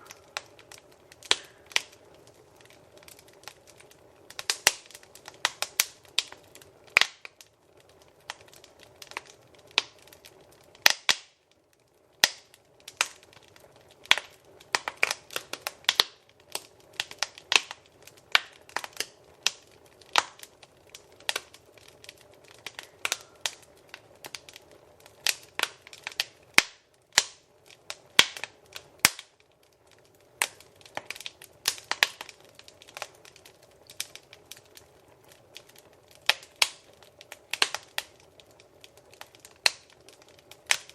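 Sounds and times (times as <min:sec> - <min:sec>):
flames hissing: 0:00.0 - 0:11.3
wood fire pops and snaps: 0:00.0 - 0:40.9.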